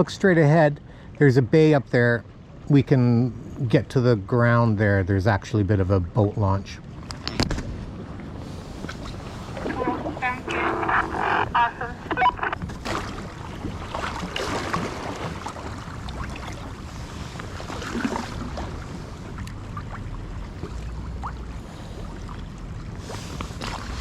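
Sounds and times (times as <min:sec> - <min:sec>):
water sloshing around a kayak: 0:05.7 - 0:24.0
wind rumbling on microphone: 0:06.8 - 0:24.0.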